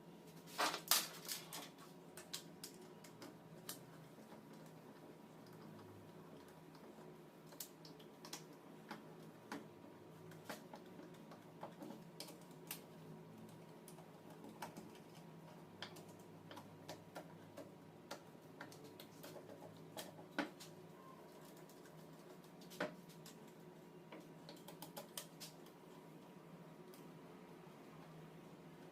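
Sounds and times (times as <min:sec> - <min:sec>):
low steady hum: 0:00.0 - 0:28.9.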